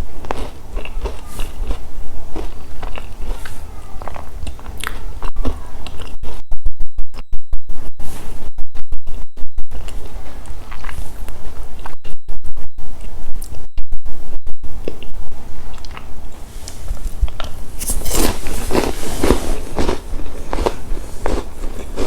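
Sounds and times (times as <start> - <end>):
chewing crunchy chocolate snacks: 0.0 - 6.3, 9.8 - 12.0, 17.2 - 22.0
loud low hum: 4.4 - 16.5.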